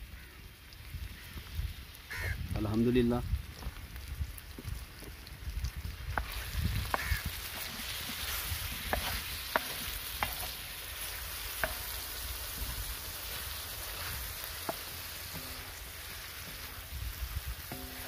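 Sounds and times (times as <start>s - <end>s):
chicken sizzling in oil: 0.0s - 18.0s
spatula tapping griddle: 6.2s - 16.8s, 17.6s - 18.0s
wooden spatula stirring: 6.2s - 18.0s.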